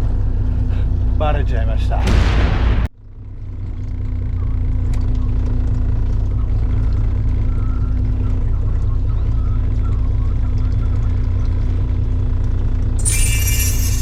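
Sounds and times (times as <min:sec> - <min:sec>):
boat engine rumbling: 0:03.2 - 0:13.0.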